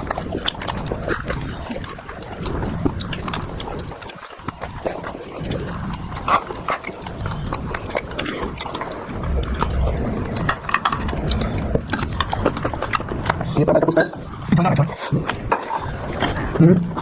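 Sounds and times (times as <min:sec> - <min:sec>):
chewing and mouth smacks: 0:00.0 - 0:17.0.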